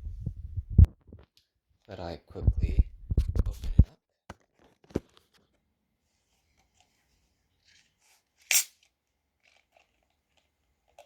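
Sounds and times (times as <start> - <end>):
soda can opening hiss: 8.5 - 8.8.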